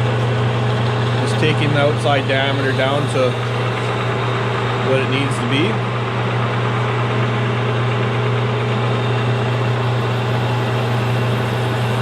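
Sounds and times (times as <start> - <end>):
metal cutting noise: 0.0 - 6.1, 8.6 - 12.0
lathe motor hum: 0.0 - 12.0.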